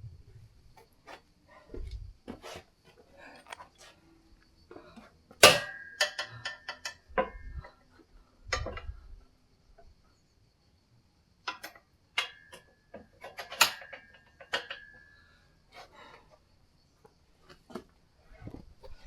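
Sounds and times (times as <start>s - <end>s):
metal weights knocking and clattering: 5.4s - 7.6s.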